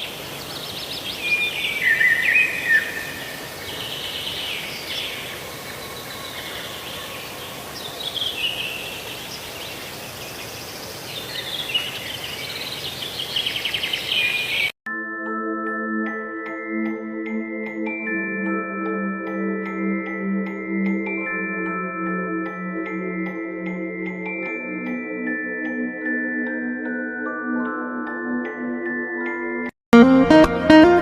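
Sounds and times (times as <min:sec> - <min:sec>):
steady background hiss: 0:00.0 - 0:14.7
birds chirping and trilling: 0:00.0 - 0:14.8.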